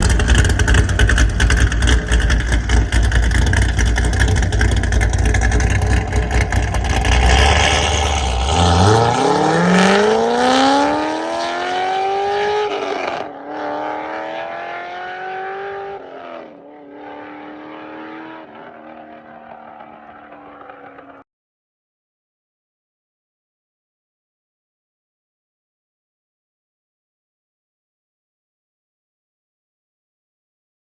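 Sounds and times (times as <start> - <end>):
car accelerating through gears: 0.0 - 21.2
car engine rumbling: 0.0 - 21.2.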